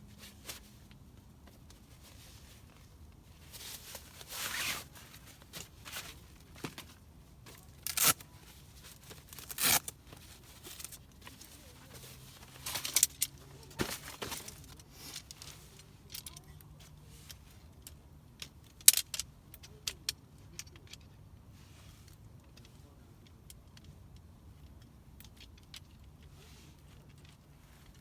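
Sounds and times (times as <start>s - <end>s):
rustling: 0.0s - 17.8s.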